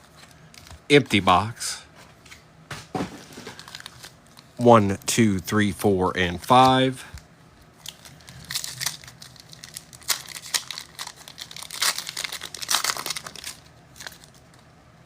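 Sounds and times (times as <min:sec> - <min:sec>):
wrapper crinkling and tearing: 0:03.2 - 0:04.6, 0:07.8 - 0:14.7.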